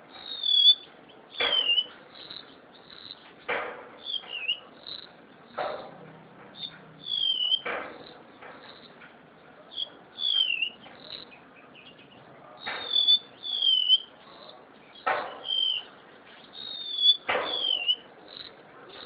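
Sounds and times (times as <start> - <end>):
bird singing high thin whistles: 0.2 - 2.4, 4.0 - 5.0, 6.6 - 7.7, 9.7 - 12.0, 12.6 - 18.1.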